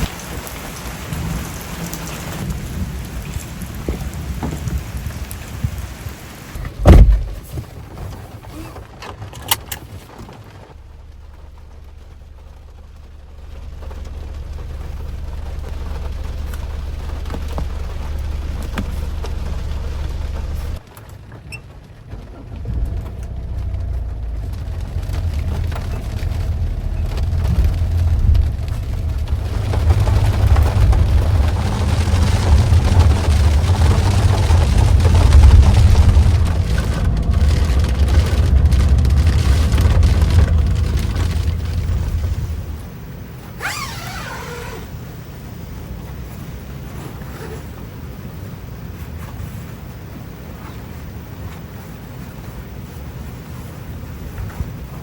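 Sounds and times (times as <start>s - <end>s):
heavy rain falling: 0.0s - 55.0s
loud sudden thump: 6.6s - 7.6s.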